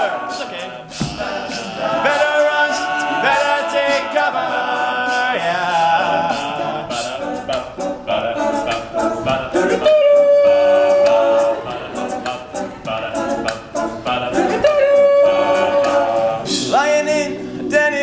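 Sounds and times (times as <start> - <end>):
male a cappella group singing: 0.0 - 18.0
vocal percussion hits: 0.0 - 18.0
high voice holding long note: 14.6 - 17.4.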